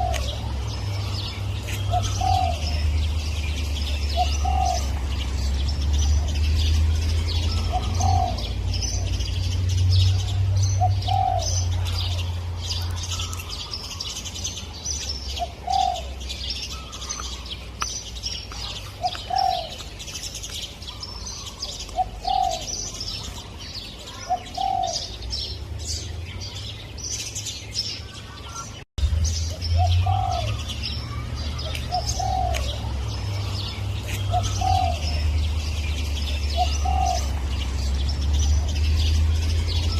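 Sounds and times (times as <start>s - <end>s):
dove cooing: 0.0s - 5.1s, 7.5s - 9.2s, 10.2s - 14.1s, 15.4s - 17.1s, 18.6s - 19.8s, 20.9s - 23.0s, 24.1s - 25.2s, 29.8s - 37.8s
small birds chirping: 0.0s - 39.9s.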